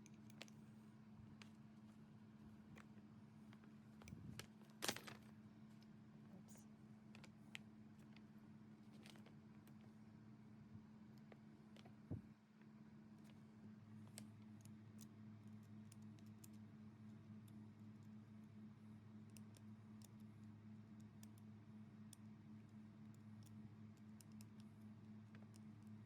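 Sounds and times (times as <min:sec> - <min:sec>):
faint low hum: 0:00.0 - 0:26.0
faint ticks and clicks: 0:11.0 - 0:26.0.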